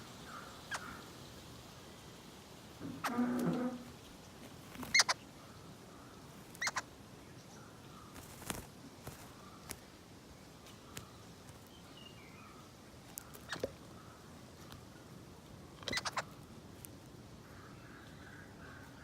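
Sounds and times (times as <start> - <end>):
faint bird chirps: 4.8 - 8.5, 15.8 - 16.4.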